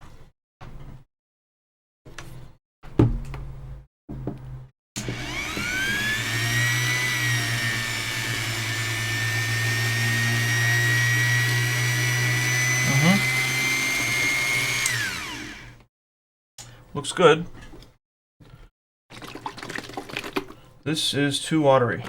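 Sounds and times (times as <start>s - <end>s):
small electric motor whining: 5.0s - 15.8s.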